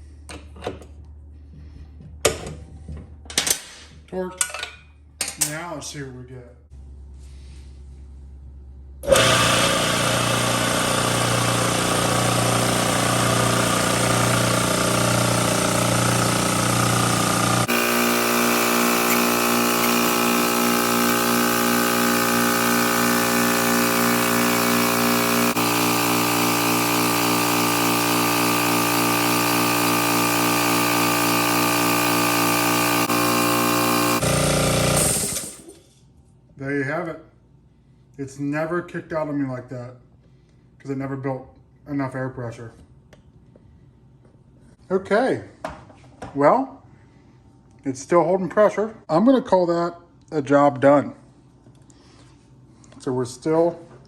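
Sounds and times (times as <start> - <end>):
air compressor running: 6.8 - 35.8.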